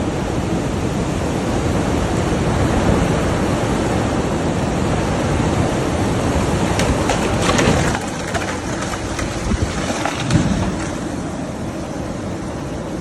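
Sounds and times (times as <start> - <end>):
clicks and rattles: 6.6 - 11.1.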